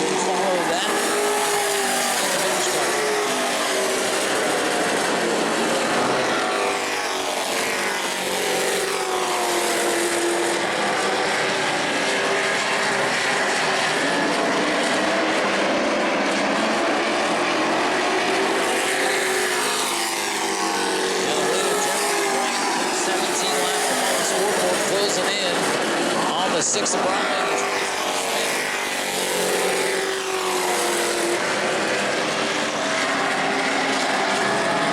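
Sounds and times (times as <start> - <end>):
race truck engines passing: 0.0 - 34.9.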